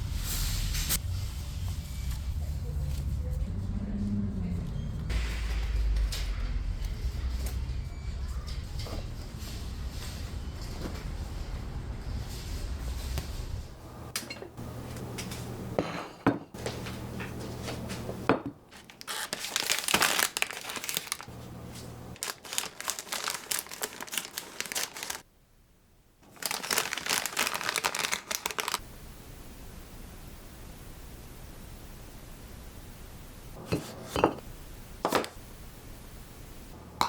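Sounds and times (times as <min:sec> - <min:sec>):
packaging crinkling: 0:18.7 - 0:25.2, 0:26.2 - 0:28.8.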